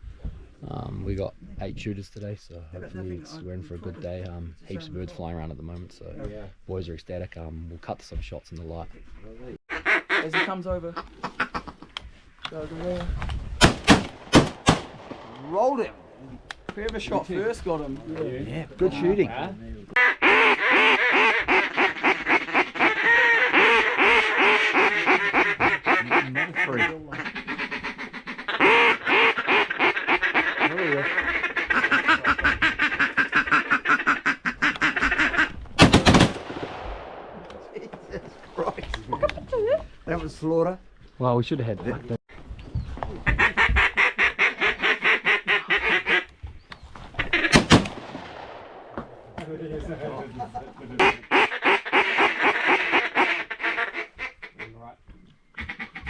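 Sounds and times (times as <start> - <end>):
duck quacking: 9.7 - 11.8, 20.0 - 35.6, 43.2 - 46.3, 51.0 - 54.8, 55.6 - 56.0
shotgun shots: 13.6 - 16.0, 35.8 - 38.1, 47.5 - 49.4.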